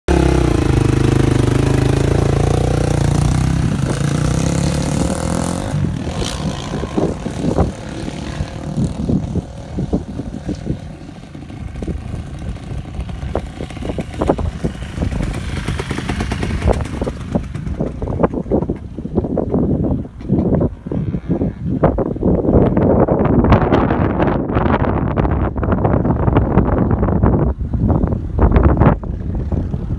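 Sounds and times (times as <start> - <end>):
dirt bike engine running: 0.1 - 20.1.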